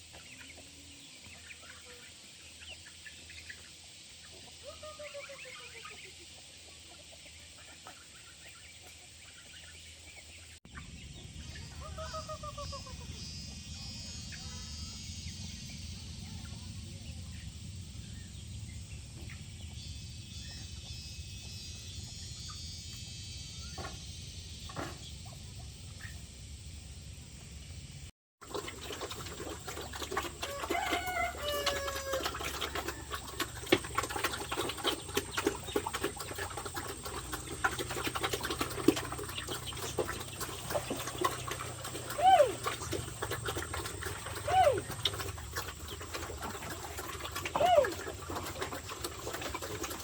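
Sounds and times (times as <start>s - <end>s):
poultry clucking: 0.0s - 15.0s, 28.5s - 50.0s.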